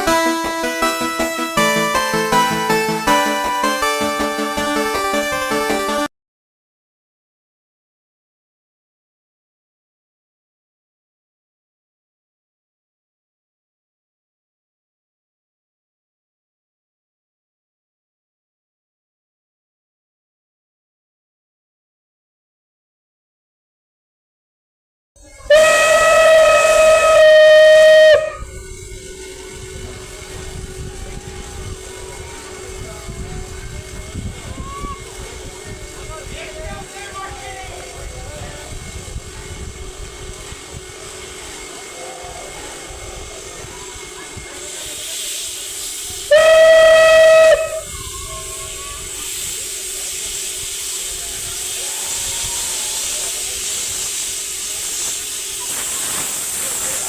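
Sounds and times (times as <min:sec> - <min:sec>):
locomotive whistle blast: 0:25.2 - 0:57.0
steam hissing: 0:25.2 - 0:57.0.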